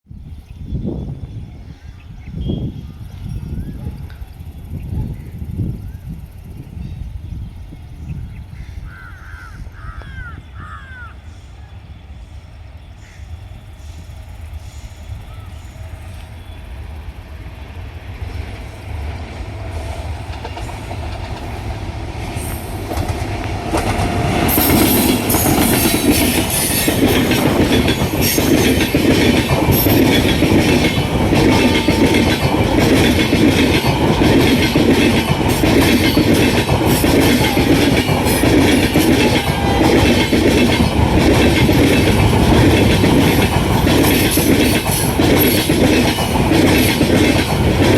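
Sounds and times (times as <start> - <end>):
train rumble: 0.2 - 47.9
train wheels clicking over rail joints: 18.2 - 47.9.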